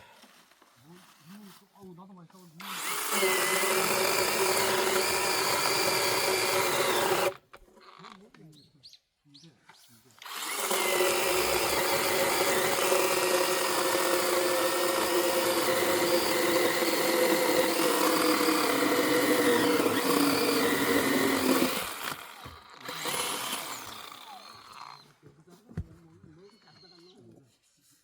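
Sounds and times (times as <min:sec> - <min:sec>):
power tool motor running: 0:02.6 - 0:07.4, 0:10.2 - 0:25.0.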